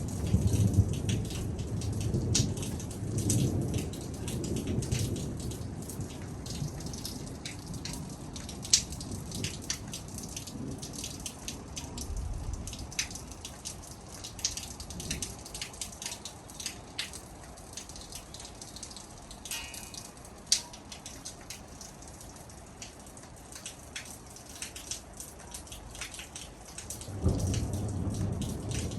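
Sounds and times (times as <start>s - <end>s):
low thunder rumble: 0.0s - 15.8s, 27.0s - 28.9s
rain: 0.0s - 28.9s
raindrops dripping on surface: 0.0s - 28.9s.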